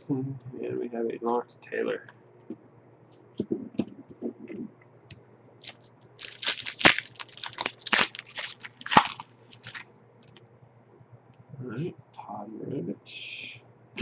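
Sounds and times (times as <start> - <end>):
wrapper crinkling and tearing: 5.6 - 9.9.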